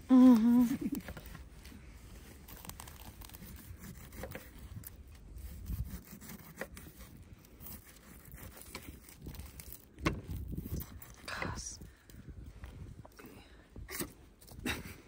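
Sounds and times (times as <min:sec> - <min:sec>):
knife sawing and scraping: 0:00.5 - 0:11.6.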